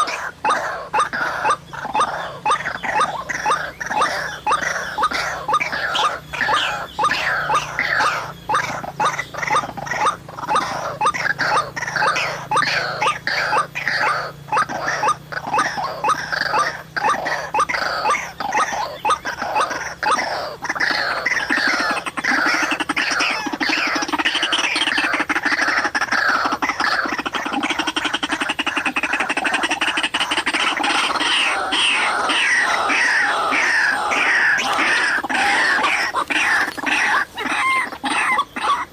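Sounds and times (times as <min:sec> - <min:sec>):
bird harsh croaking calls: 0:00.0 - 0:38.9.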